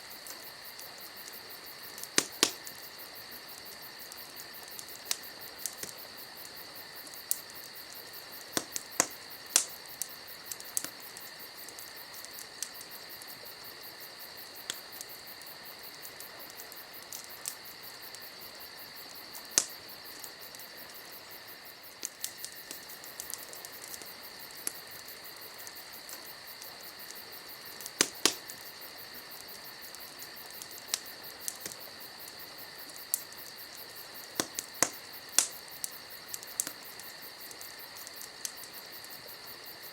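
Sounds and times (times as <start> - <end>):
wood fire crackling: 0.0 - 39.9
sharp pops and snaps: 0.2 - 2.9, 3.5 - 13.4, 19.3 - 21.0, 21.9 - 39.2.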